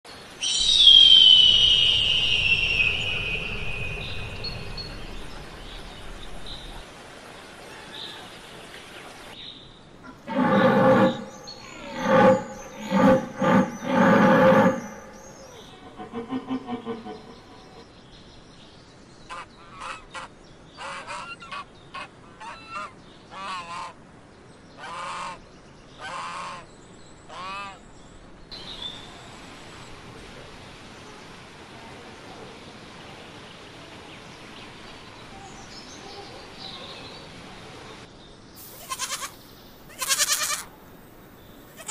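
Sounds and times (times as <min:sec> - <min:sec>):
low rumble: 0:10.1 - 0:17.9.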